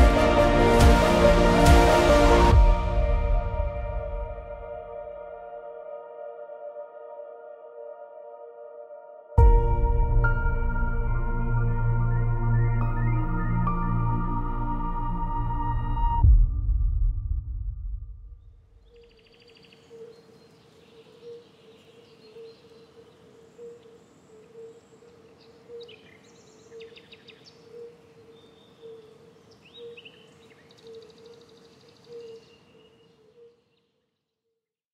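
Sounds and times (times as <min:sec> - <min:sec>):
birds chirping and trilling: 0:18.8 - 0:34.0.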